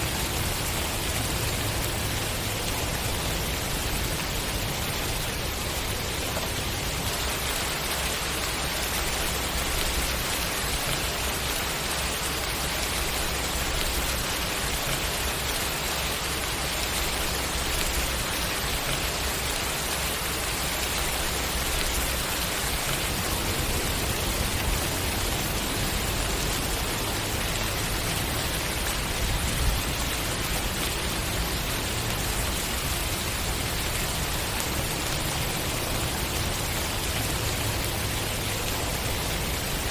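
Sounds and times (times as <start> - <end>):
steady rainfall pattering: 0.0 - 39.9.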